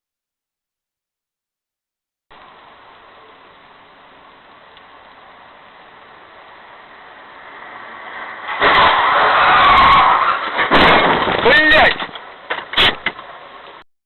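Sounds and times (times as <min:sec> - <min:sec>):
sudden loud sustained noise: 0:02.3 - 0:08.7
road vehicle low rumble: 0:02.3 - 0:11.4, 0:12.0 - 0:13.8.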